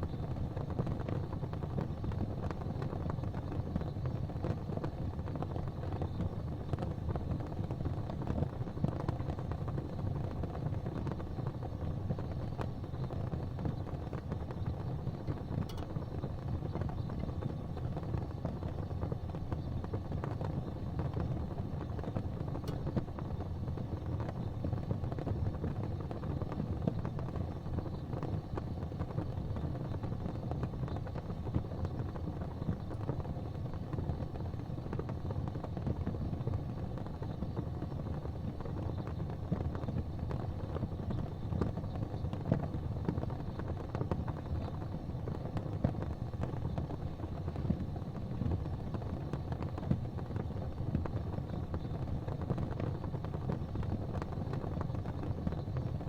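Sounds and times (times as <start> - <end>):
gas fireplace flames rumbling: 0.0 - 56.0
soft ticks: 15.6 - 15.9.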